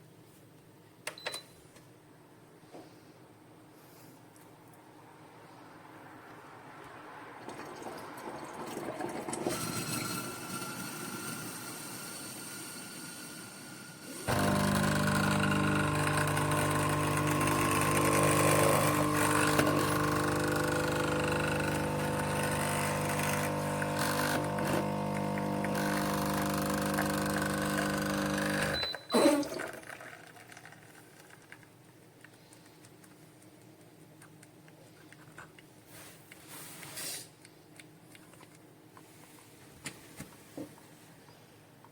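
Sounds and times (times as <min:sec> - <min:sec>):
coffee machine hissing: 0:09.5 - 0:29.8
coffee machine pump buzzing: 0:14.0 - 0:30.1.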